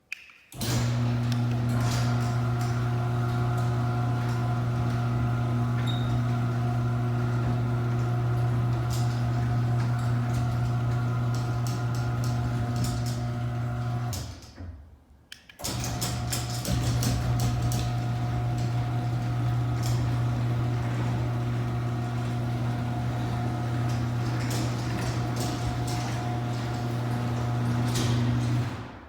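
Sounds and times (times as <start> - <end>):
garage door opener motor hum: 0.6 - 14.7, 15.6 - 29.0.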